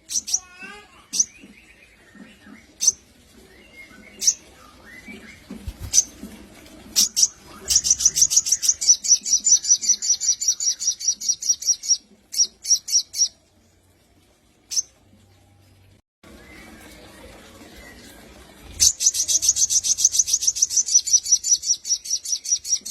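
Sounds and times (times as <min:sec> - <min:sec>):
bird chirping: 0:07.0 - 0:13.4, 0:18.8 - 0:22.9.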